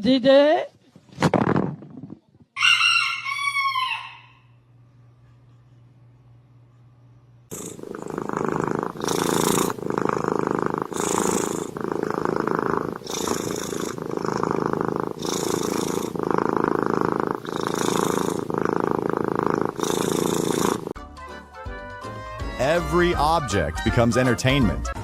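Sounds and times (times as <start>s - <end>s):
cat purring loudly: 7.5s - 21.0s.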